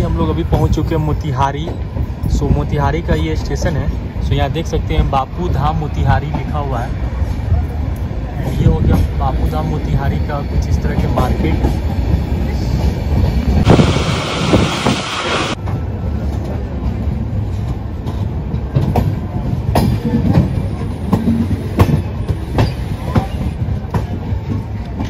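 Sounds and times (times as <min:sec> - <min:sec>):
train wheels rumbling on rails: 0:00.0 - 0:25.0
rushing hiss: 0:13.5 - 0:15.6.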